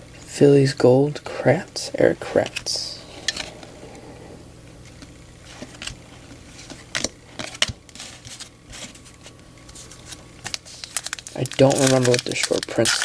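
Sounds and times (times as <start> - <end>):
trading cards flipped by hand: 6.6 - 11.2.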